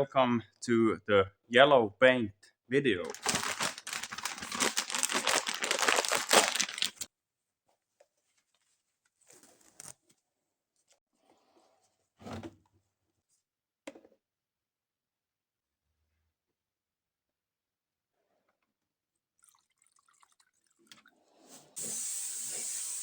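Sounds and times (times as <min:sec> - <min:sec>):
loud crackling tearing noise: 0:03.0 - 0:07.1.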